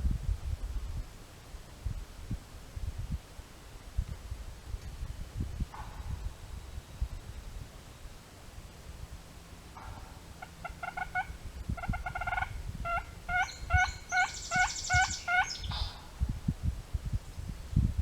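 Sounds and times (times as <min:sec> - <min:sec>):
high rattling call: 0:09.8 - 0:15.9
turkey yelping: 0:10.4 - 0:16.0.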